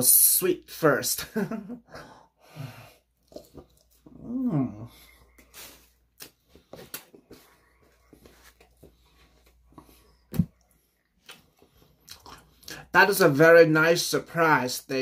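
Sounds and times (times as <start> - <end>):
person chewing food: 3.2 - 4.3, 5.0 - 12.8.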